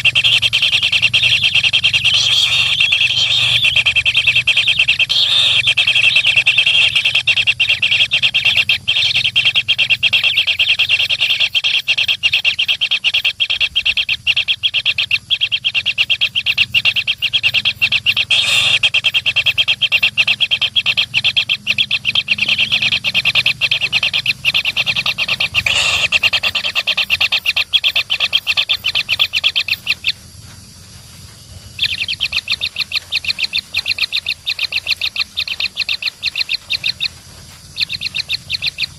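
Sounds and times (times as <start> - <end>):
baby birds chirping: 0.0 - 30.3, 31.5 - 38.9.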